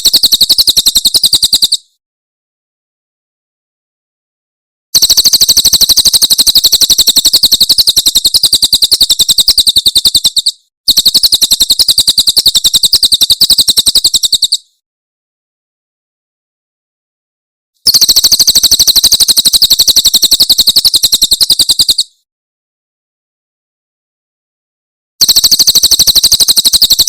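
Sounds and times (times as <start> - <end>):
songbird rapid high chirps: 0.0 - 1.9, 5.0 - 14.7, 17.9 - 22.2, 25.2 - 27.0.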